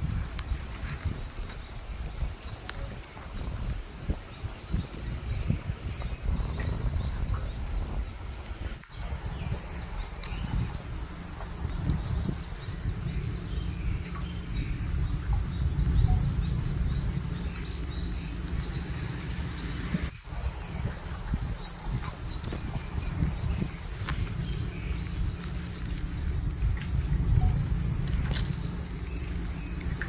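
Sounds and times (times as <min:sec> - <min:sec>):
wind on microphone: 0:00.0 - 0:30.0
insect chorus buzzing: 0:08.9 - 0:30.0.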